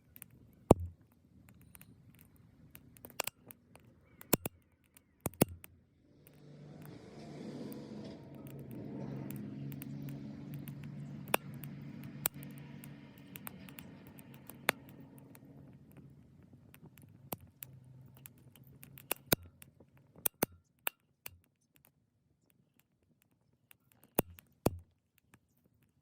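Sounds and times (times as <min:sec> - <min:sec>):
wood fire crackling: 0:01.5 - 0:20.3
low hum: 0:05.8 - 0:17.1.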